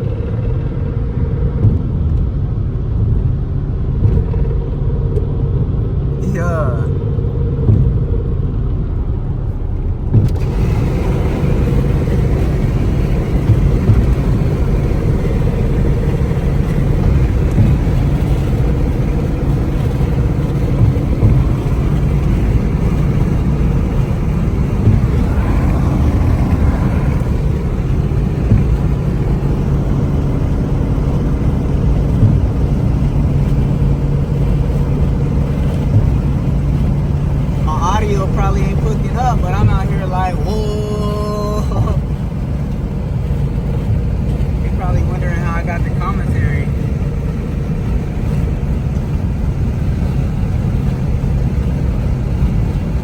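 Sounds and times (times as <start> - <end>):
car engine drone: 0.0 - 53.0
road noise: 0.0 - 53.0.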